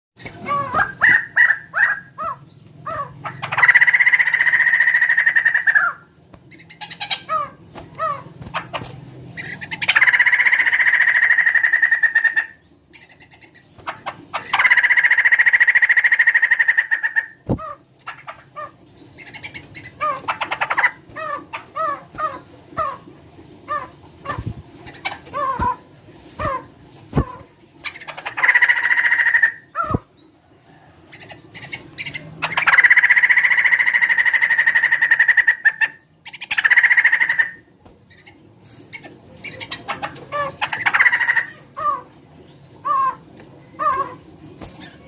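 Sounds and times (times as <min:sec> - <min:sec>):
harsh rattling bird call: 0:00.2 - 0:23.1, 0:26.4 - 0:30.0, 0:31.5 - 0:37.6, 0:38.7 - 0:42.1.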